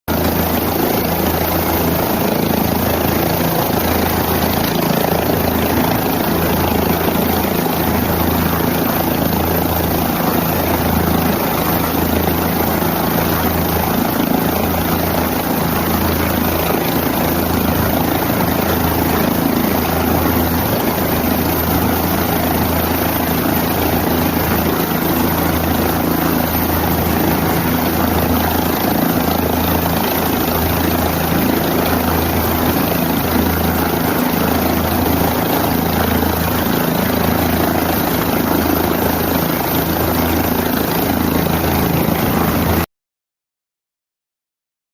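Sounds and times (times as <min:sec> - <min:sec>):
helicopter engine and rotor: 0:00.1 - 0:42.9.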